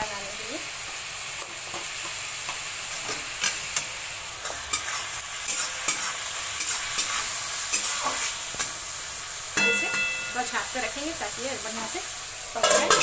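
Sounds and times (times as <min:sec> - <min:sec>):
vegetables sizzling in hot oil: 0:00.0 - 0:13.0
spatula scraping a pan: 0:04.4 - 0:08.8.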